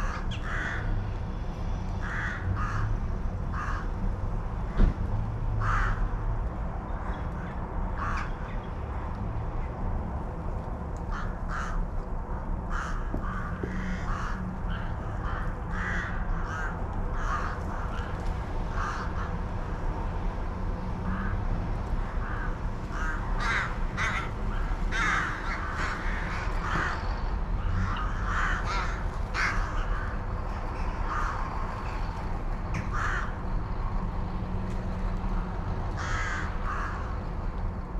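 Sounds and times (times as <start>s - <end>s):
crows cawing: 0.0s - 1.0s, 2.0s - 4.0s, 5.6s - 6.2s, 7.0s - 9.1s, 11.0s - 11.9s, 12.7s - 19.9s, 21.0s - 32.2s, 32.8s - 33.6s, 35.4s - 37.3s.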